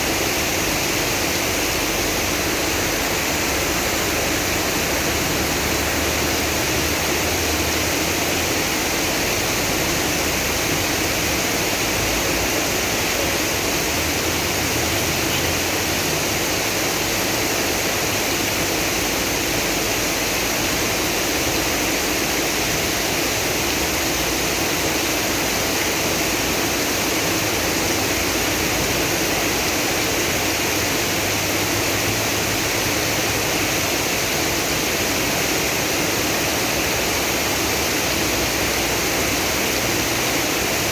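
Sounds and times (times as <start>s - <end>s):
heavy rain pouring: 0.0s - 40.9s
rushing water: 0.0s - 40.9s.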